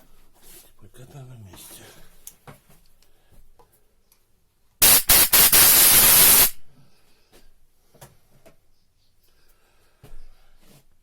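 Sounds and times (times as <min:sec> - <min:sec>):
pressurised jet hissing: 0:04.8 - 0:06.6.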